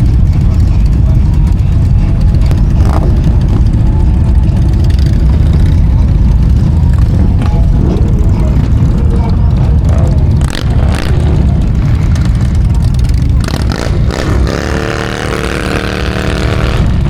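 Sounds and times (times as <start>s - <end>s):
motorcycle engine rumble: 0.0s - 17.0s
road noise: 0.0s - 17.0s.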